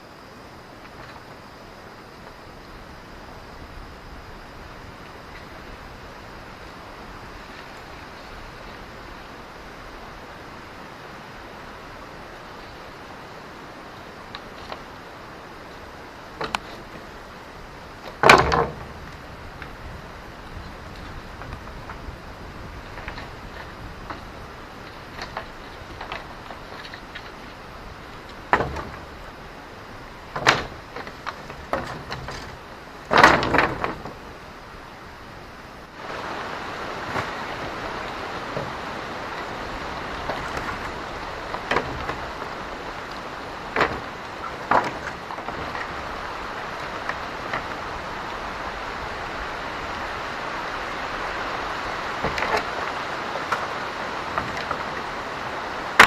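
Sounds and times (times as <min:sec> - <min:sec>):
steady hiss: 0:00.0 - 0:56.0
knocks and thuds: 0:18.1 - 0:19.1, 0:28.4 - 0:29.1, 0:30.3 - 0:34.2.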